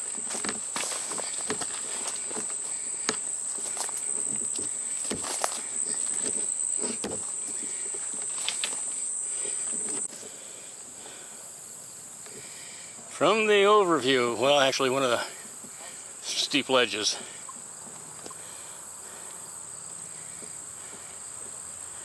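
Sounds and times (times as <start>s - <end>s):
footsteps on a trail: 0.0s - 11.2s, 17.2s - 22.0s
insect chorus: 0.0s - 22.0s.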